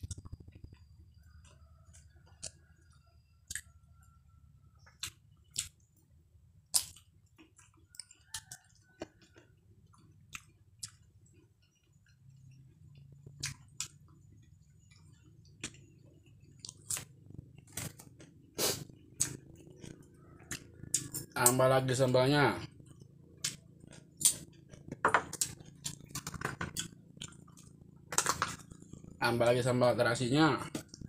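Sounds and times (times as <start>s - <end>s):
person chewing food: 0.0s - 4.2s, 4.8s - 21.6s, 22.8s - 29.2s
wet mouth smacks and clicks: 6.7s - 7.1s, 19.2s - 21.2s.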